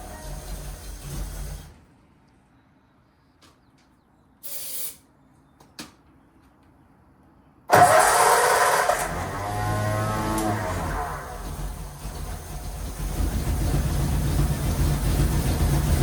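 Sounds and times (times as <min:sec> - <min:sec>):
short hiss: 0:04.4 - 0:05.0
car engine starting and running: 0:07.7 - 0:16.0.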